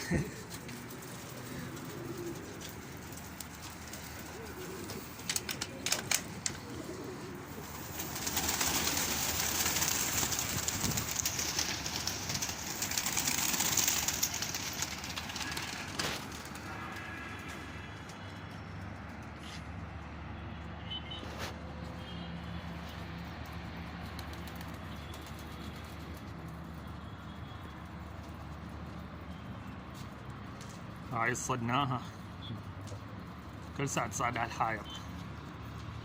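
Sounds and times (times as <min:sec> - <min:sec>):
pigeons cooing: 0:00.0 - 0:16.5
sharp clicks: 0:05.2 - 0:06.6.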